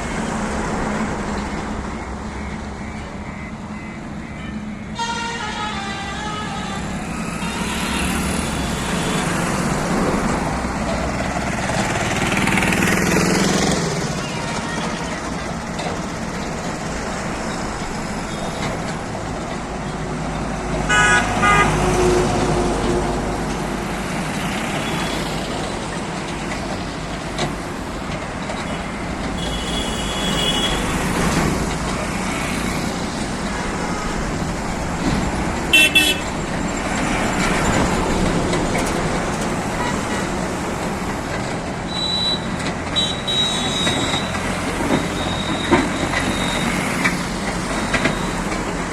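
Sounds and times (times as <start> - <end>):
road traffic engines: 0.0 - 48.9
vehicle horn: 4.4 - 9.4, 20.9 - 21.9, 29.4 - 31.1, 35.7 - 36.4.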